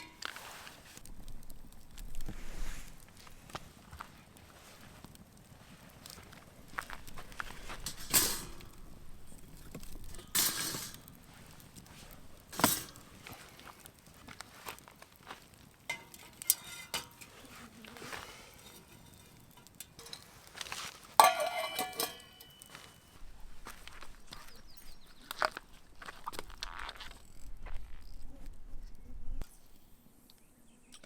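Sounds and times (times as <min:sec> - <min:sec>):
cookware knocks and scrapes: 0:21.2 - 0:22.5
ringing metal clinks: 0:21.2 - 0:23.1.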